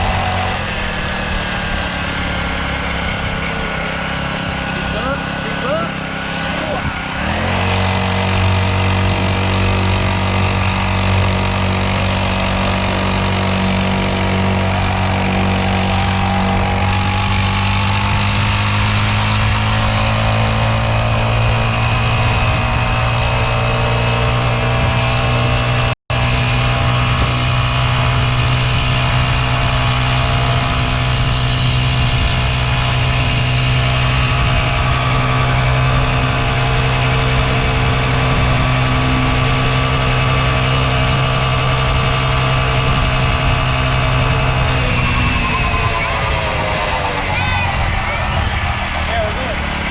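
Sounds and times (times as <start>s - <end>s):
dirt bike engine running: 0.0s - 49.9s.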